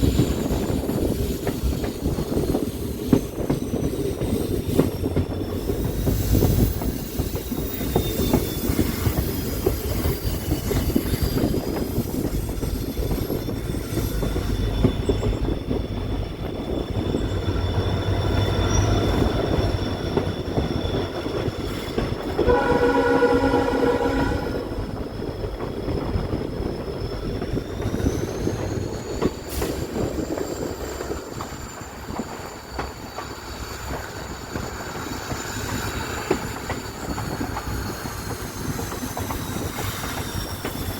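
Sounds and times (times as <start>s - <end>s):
high wheel squeal: 0.0s - 40.9s
train rumbling along track: 0.0s - 40.9s
train horn: 22.3s - 25.0s.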